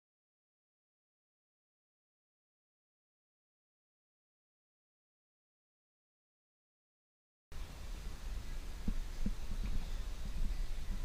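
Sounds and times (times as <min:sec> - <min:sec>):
low rumble with faint hiss: 0:07.5 - 0:11.0.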